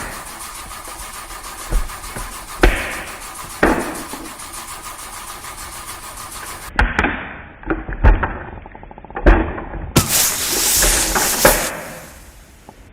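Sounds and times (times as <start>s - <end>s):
sharp thumps: 0.0s - 6.7s, 10.0s - 12.9s
steady hum: 0.0s - 6.7s, 10.0s - 12.7s.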